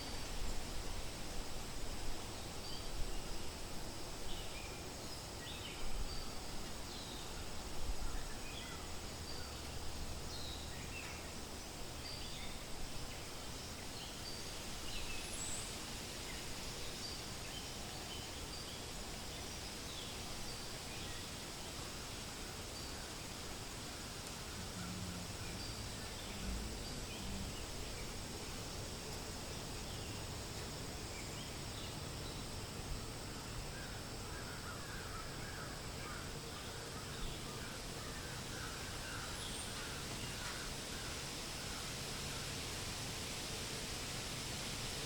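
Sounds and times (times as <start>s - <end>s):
wind rustling leaves: 0.0s - 45.0s
birds chirping: 24.0s - 28.6s.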